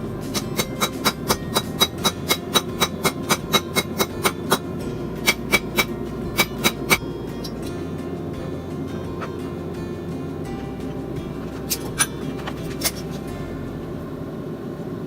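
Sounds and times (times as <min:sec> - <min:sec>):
hammer ringing on anvil: 0:05.2 - 0:07.6.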